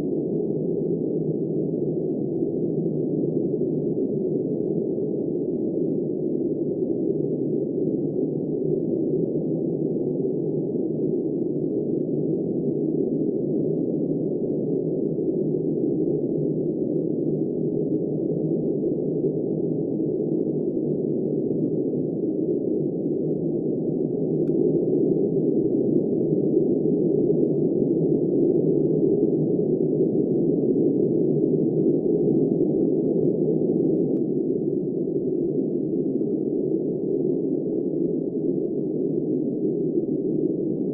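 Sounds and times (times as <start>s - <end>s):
muffled wind noise: 10.8s - 40.9s.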